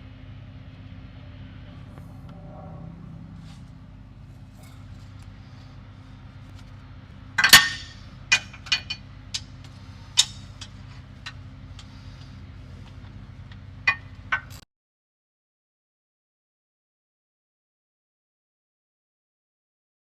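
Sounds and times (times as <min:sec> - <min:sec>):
low hum: 0:00.0 - 0:14.6
metal tools clinking: 0:07.4 - 0:11.9.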